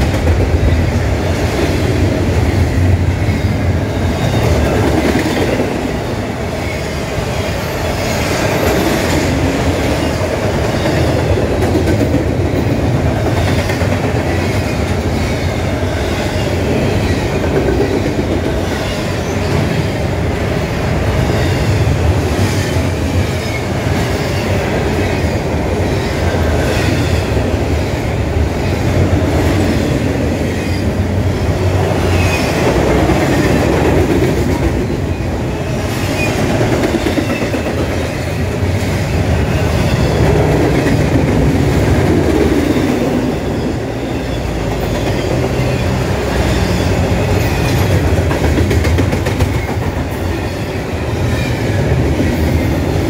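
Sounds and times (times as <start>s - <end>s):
steel wheels rumbling on rail: 0.0s - 53.0s.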